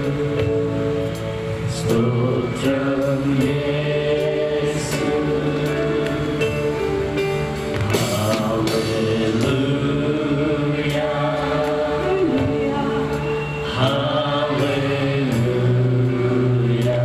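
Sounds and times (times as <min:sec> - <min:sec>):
worship music with singing: 0:00.0 - 0:17.0.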